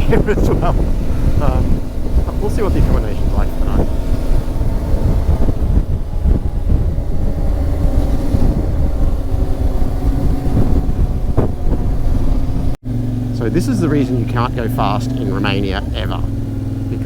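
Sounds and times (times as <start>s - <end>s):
motorcycle engine cruising: 0.0s - 17.0s
wind buffeting microphone: 0.0s - 17.0s.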